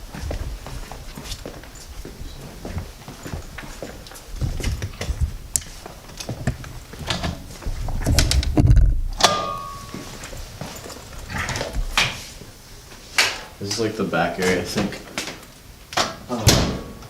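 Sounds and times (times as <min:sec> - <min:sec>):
footsteps echoing: 0:00.0 - 0:13.1
heavy rumbling thud: 0:07.6 - 0:09.2.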